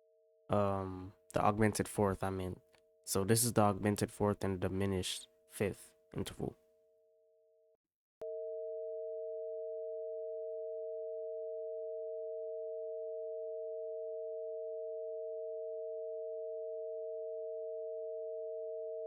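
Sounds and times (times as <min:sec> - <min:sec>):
two pure sine tones: 0:08.2 - 0:19.0.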